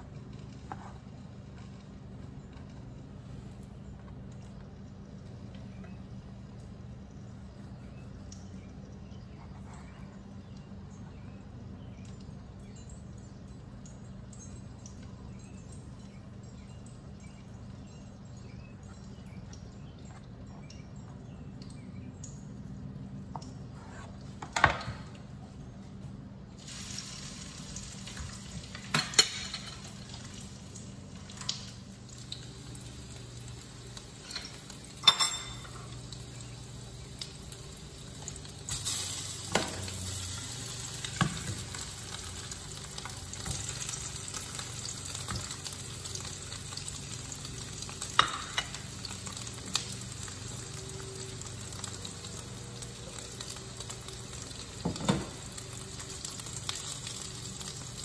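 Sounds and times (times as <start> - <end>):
hot dogs sizzling in frying pan: 26.6 - 58.0.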